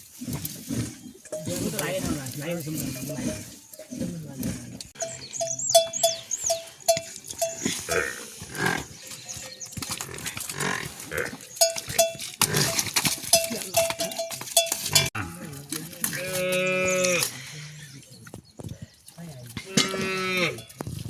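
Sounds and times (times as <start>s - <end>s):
livestock neck bells clanking: 1.1s - 8.4s, 9.0s - 15.2s
cow mooing: 19.7s - 20.7s.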